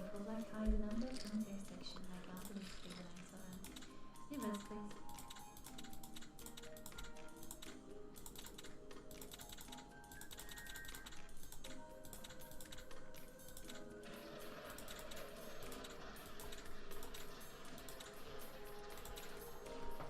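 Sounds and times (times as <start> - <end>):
quiet background music: 0.0 - 20.0
rapid irregular clicking: 0.0 - 20.0.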